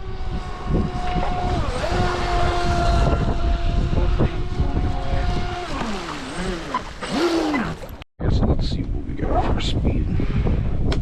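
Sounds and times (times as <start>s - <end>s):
electric boat motor whining: 0.0s - 8.0s
wind buffeting microphone: 0.0s - 11.0s.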